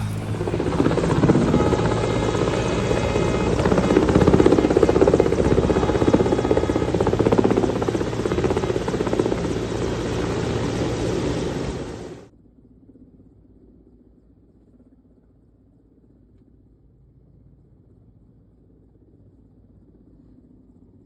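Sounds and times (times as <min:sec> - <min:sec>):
helicopter rotor chop: 0:00.0 - 0:12.3
turbine whine: 0:00.0 - 0:12.3.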